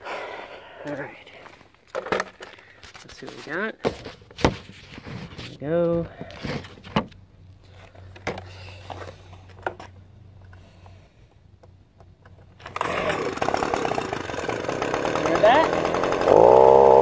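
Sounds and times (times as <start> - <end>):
leaf blower engine running: 12.6 - 17.0.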